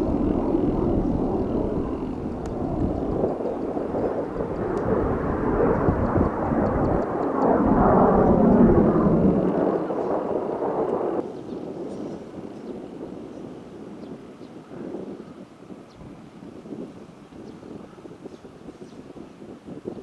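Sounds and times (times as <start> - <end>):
jet aircraft flying past: 0.0 - 11.2.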